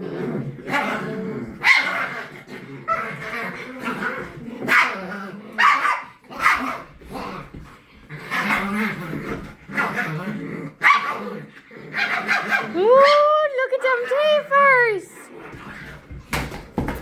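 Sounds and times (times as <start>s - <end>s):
dog barking: 1.6s - 2.1s, 4.7s - 5.0s, 5.6s - 6.8s, 10.8s - 11.2s, 12.0s - 13.2s.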